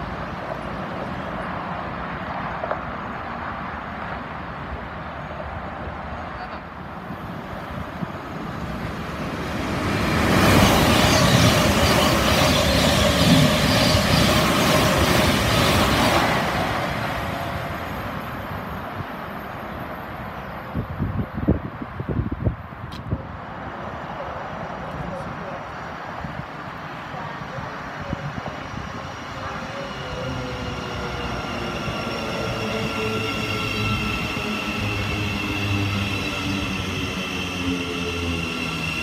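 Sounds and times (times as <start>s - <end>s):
steady train whine: 0.0s - 39.0s
train wheels on rails: 8.0s - 20.2s.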